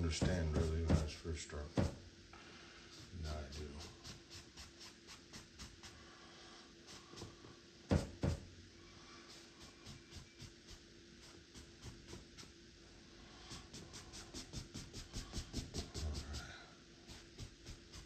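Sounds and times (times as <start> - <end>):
paintbrush dabbing on canvas: 0.0 - 1.2, 2.9 - 6.0, 9.3 - 12.6, 13.4 - 18.0.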